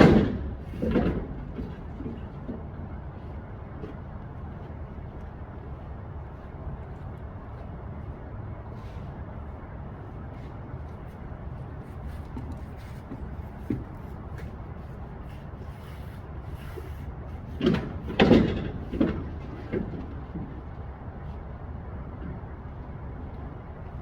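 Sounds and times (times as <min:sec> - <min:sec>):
knocks and a bang: 0:00.0 - 0:02.7, 0:17.6 - 0:20.0
steady low rumble: 0:00.0 - 0:24.0.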